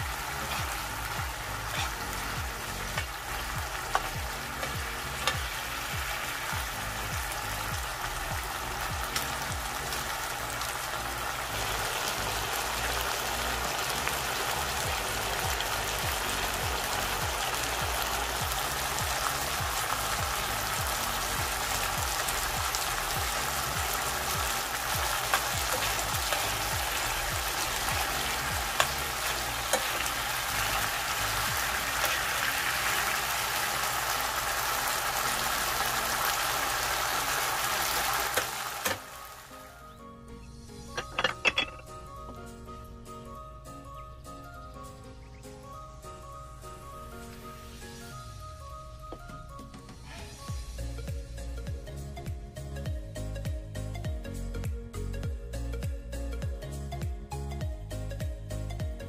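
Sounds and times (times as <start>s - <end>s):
food sizzling in a pan: 0.0s - 39.7s.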